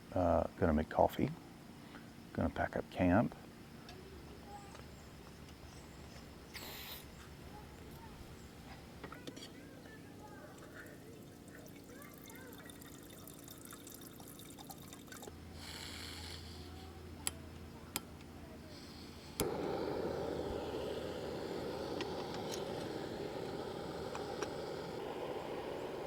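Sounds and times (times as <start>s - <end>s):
gas stove burner hissing: 5.4s - 9.1s, 15.4s - 26.0s
gas stove lighting whoosh: 18.8s - 26.0s.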